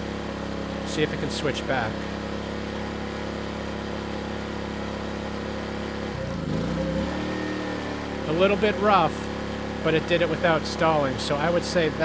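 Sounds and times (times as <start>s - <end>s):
generator engine running: 0.0s - 12.0s.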